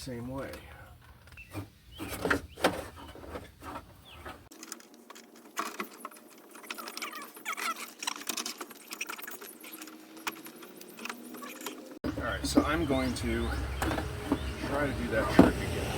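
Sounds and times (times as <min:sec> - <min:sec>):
window glass rattling and squeaking: 0:00.9 - 0:04.5, 0:05.6 - 0:15.9.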